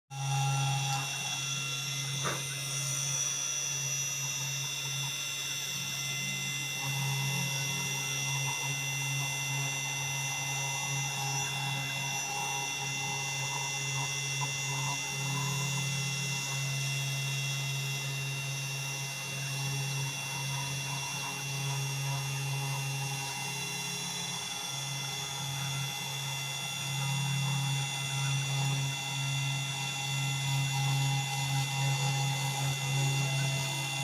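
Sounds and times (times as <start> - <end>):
router spindle motor whining: 0.1 - 34.0.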